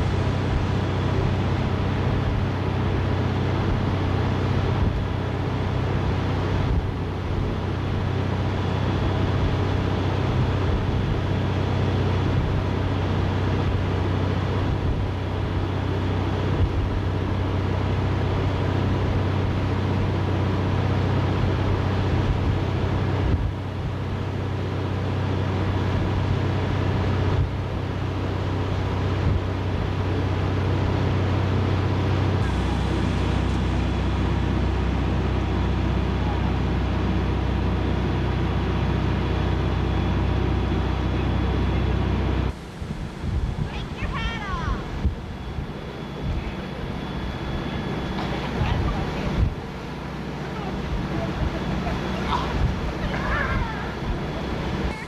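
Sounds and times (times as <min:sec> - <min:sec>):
boat engine droning: 0:00.0 - 0:55.0.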